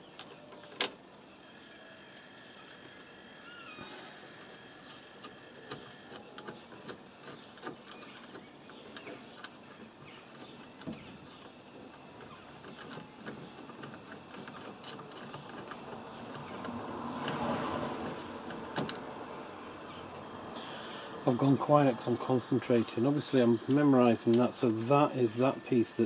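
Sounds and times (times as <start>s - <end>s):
clicks of handled metal and plastic: 4.8s - 9.6s.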